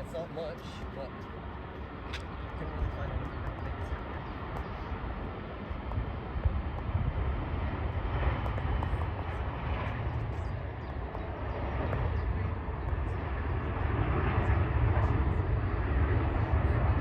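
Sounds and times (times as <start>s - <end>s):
jet engine rumble: 0.0s - 17.0s.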